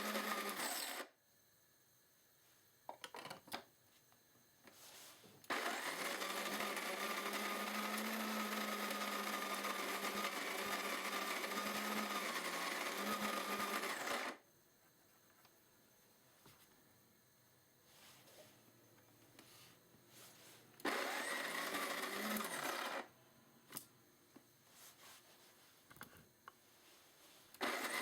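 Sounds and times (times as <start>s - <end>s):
coffee grinder motor whining: 0.0s - 1.1s, 5.5s - 14.4s, 20.8s - 23.1s, 27.6s - 28.0s.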